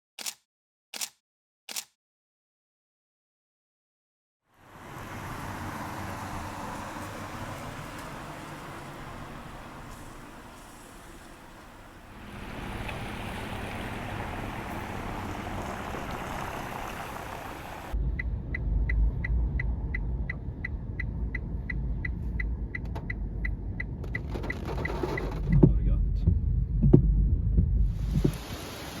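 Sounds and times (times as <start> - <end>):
outdoor noise rush: 4.5 - 20.4, 24.0 - 29.0
car interior rumble: 4.7 - 28.6
turn signal ticking: 5.8 - 28.4.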